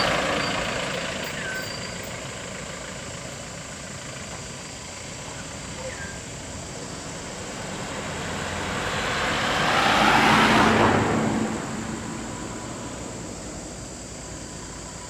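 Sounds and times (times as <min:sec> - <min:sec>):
motor vehicle passing: 0:05.4 - 0:13.8.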